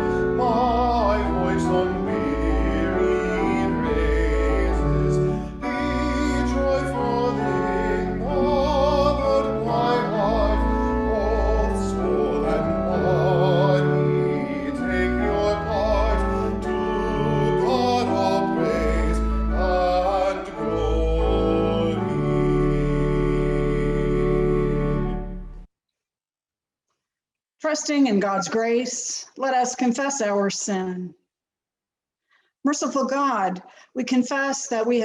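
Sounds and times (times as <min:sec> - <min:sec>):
person singing with vibrato: 0:00.0 - 0:25.2, 0:28.1 - 0:28.8
instrumental accompaniment: 0:00.0 - 0:25.7.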